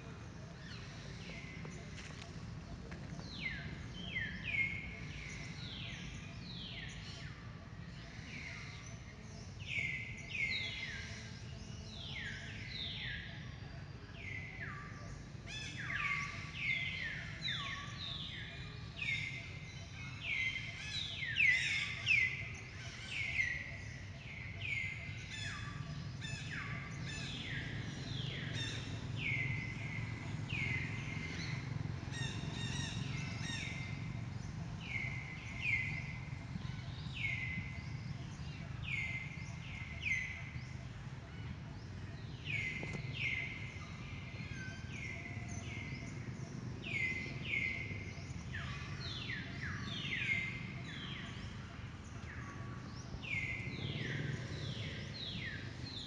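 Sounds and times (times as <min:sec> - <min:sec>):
low steady rumble: 0:00.0 - 0:56.0
birds calling: 0:14.5 - 0:56.0.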